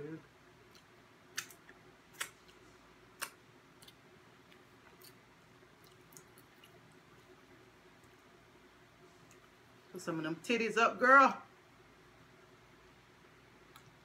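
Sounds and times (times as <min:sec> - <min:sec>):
person chewing crispy chicken: 0:00.6 - 0:08.2.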